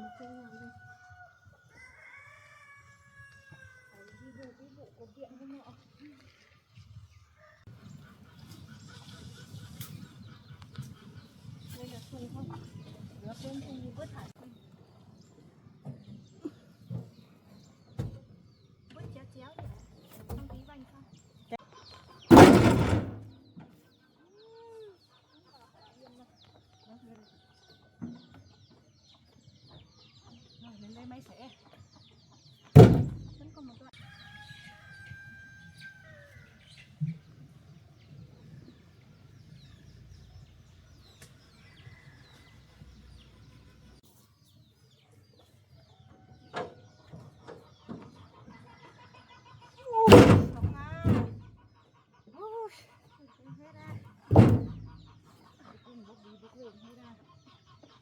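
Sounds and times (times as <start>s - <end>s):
birds chirping: 3.6s - 44.0s
log crashing onto vehicle bed: 22.3s - 23.3s, 32.8s - 33.4s, 50.1s - 51.5s, 54.3s - 55.0s
small birds chirping: 23.2s - 58.0s
sharp knocks: 32.8s - 33.4s, 50.1s - 51.4s, 54.3s - 55.0s.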